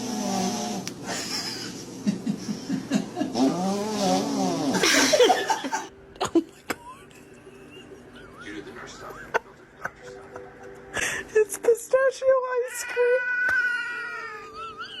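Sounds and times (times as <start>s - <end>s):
person laughing: 1.0s - 3.4s, 4.7s - 11.2s, 14.4s - 15.0s.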